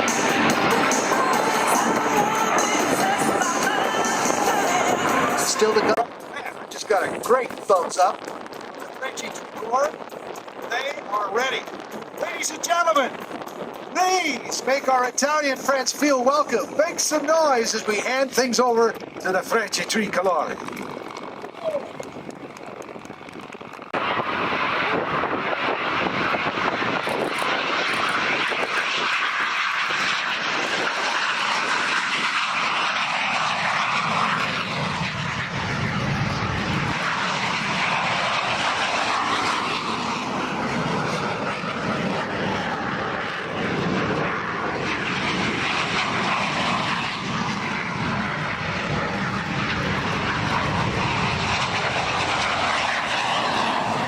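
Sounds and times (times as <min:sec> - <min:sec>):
deep rumble: 0:00.0 - 0:54.0
jet engines roaring: 0:00.0 - 0:54.0.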